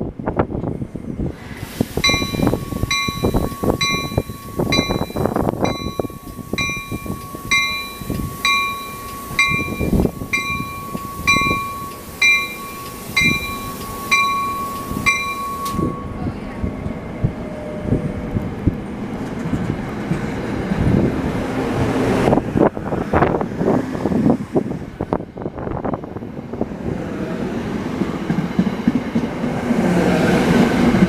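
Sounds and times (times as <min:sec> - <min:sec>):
train wheels rumbling and knocking: 0:00.0 - 0:31.0
short repeating ding: 0:02.0 - 0:16.2
steady high tone: 0:02.0 - 0:18.2.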